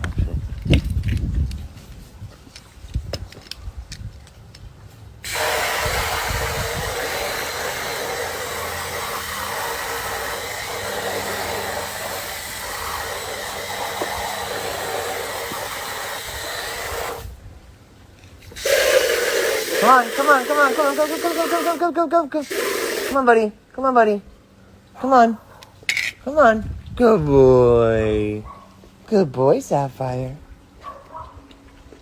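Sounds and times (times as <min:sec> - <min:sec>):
loud steady hiss: 0:05.2 - 0:17.4, 0:18.4 - 0:23.4.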